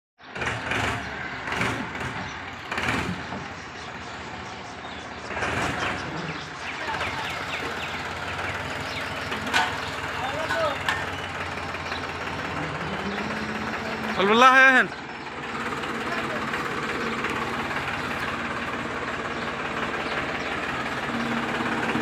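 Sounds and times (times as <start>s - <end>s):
tractor engine running: 0.2s - 22.0s.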